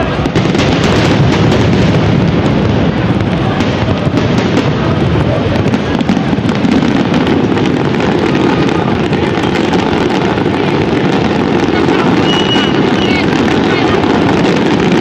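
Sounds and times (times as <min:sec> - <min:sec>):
fireworks bursts and crackles: 0:00.0 - 0:15.0.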